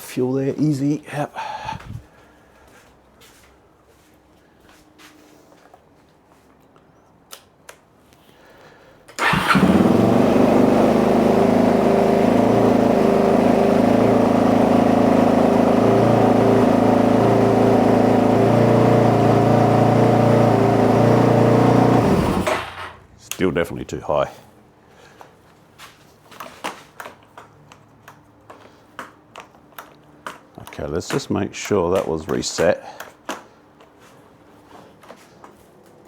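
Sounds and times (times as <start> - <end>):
motorcycle engine idling: 9.2 - 22.9.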